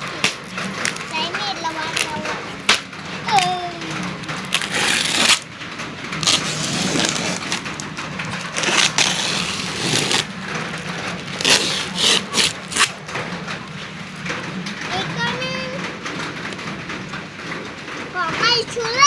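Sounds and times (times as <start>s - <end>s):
packaging crinkling and tearing: 0.0s - 13.5s.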